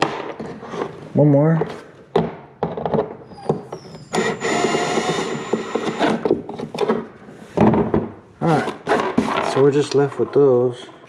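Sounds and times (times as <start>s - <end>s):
handling knocks and clicks: 0.0s - 3.9s, 5.6s - 10.6s
power drill running: 4.1s - 6.3s.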